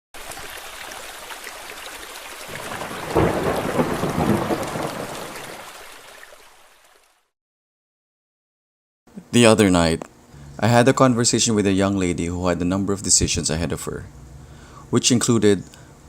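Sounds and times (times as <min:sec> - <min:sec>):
steady rain: 0:00.2 - 0:07.1
thunder rolling: 0:02.5 - 0:05.6.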